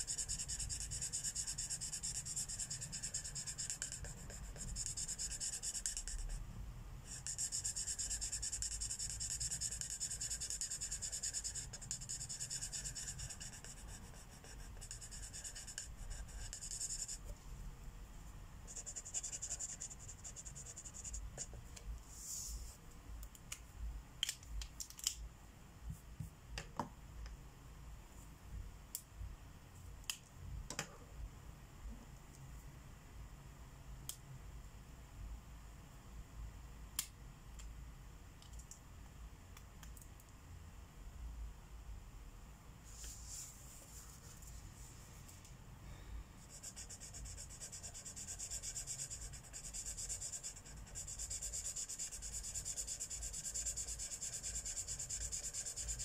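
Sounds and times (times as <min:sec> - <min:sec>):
marker scratching on paper: 0:00.0 - 0:06.4, 0:07.1 - 0:17.3, 0:18.7 - 0:22.8, 0:46.4 - 0:56.0.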